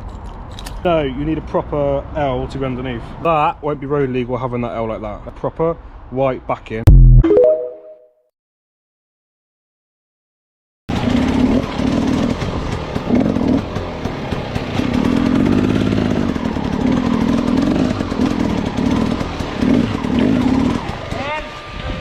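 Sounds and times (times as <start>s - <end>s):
motorcycle engine revving: 10.9s - 22.0s.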